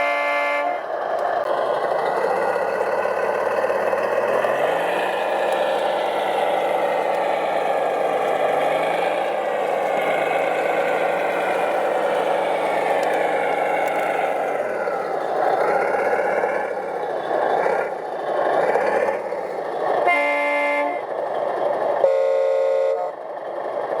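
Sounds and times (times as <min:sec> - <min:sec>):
horn blasts: 0:00.0 - 0:00.9, 0:20.0 - 0:21.1, 0:22.0 - 0:23.2
toy truck motor drone: 0:00.0 - 0:24.0.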